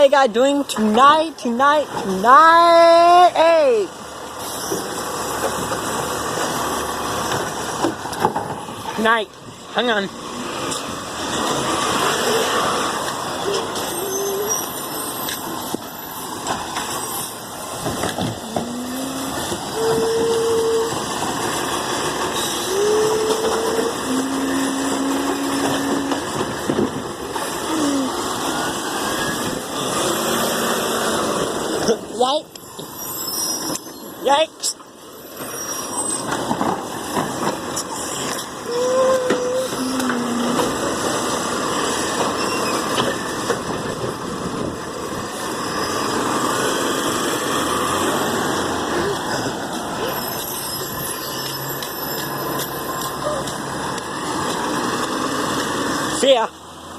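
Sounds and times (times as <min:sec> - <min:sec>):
garbage truck rumbling: 0:00.0 - 0:56.9
garbage truck engine running: 0:03.9 - 0:32.1.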